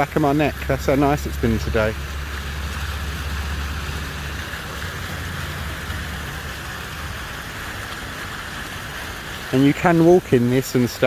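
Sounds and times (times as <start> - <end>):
fountain jets splashing: 0.0 - 11.0.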